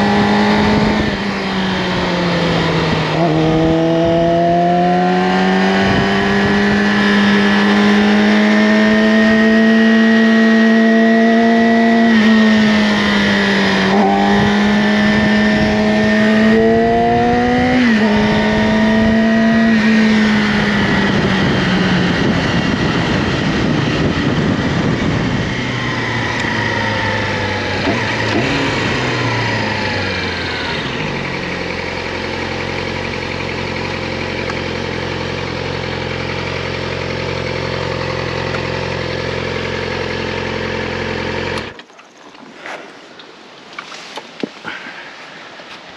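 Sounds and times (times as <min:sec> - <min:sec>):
motorcycle engine revving: 0:00.0 - 0:41.8
motorcycle engine idling: 0:20.4 - 0:42.2.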